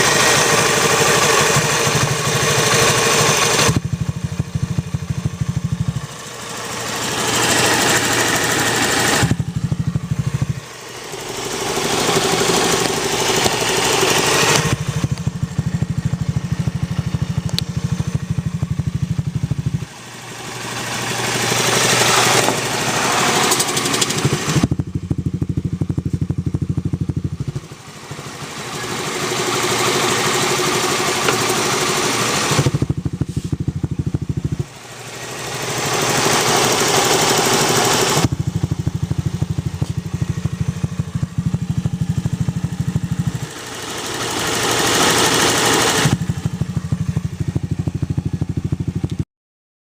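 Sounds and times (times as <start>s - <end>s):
scooter engine idling and revving: 0.0s - 49.2s.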